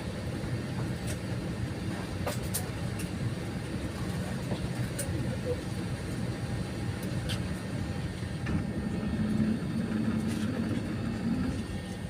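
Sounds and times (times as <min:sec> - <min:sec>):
jet engines rumbling in cabin: 0:00.0 - 0:12.0
low hum: 0:06.6 - 0:12.0.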